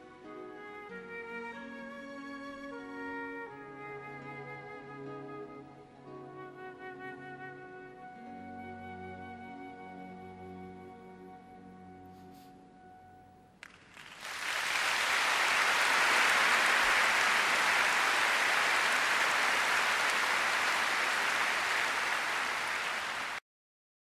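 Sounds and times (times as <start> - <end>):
audience applauding: 13.6 - 23.4.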